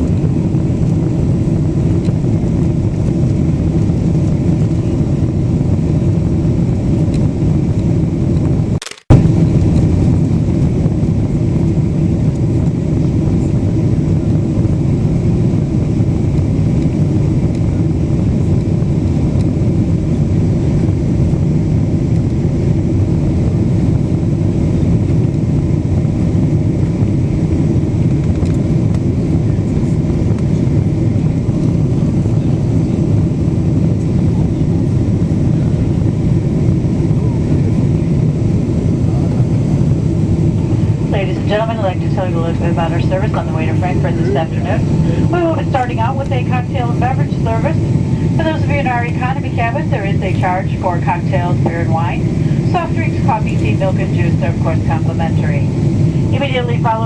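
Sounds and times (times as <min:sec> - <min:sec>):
airliner cabin roar: 0:00.0 - 0:57.0
sharp click: 0:08.8 - 0:09.2.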